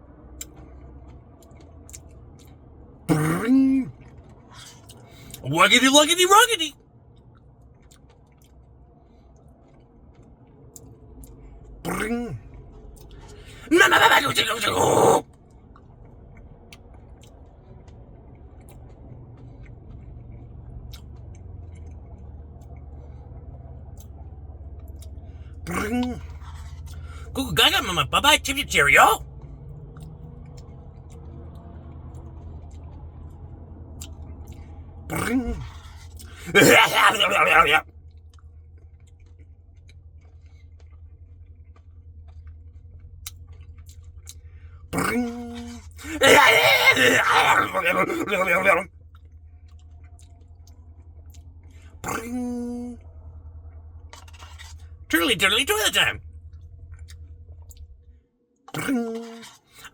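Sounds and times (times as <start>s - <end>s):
person humming: 36.3s - 37.8s, 46.0s - 48.8s
mouth clicks: 46.0s - 48.8s.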